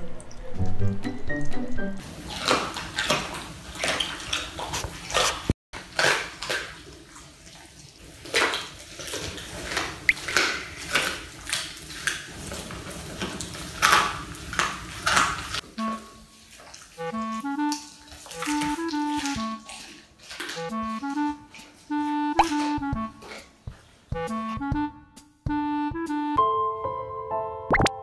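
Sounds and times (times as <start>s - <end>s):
dog chewing meat and bone: 2.0s - 24.3s.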